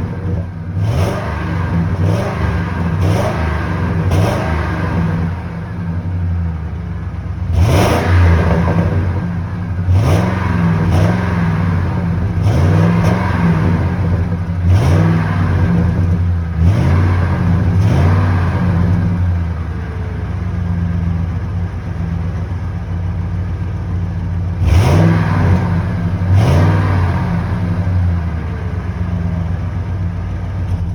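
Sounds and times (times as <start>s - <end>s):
engine idling and revving: 0.0s - 30.9s.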